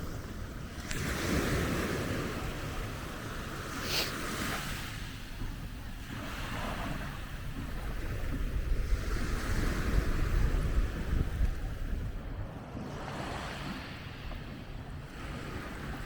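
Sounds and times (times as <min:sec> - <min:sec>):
wind rumbling on microphone: 0:00.0 - 0:16.0
short hiss: 0:03.8 - 0:04.2.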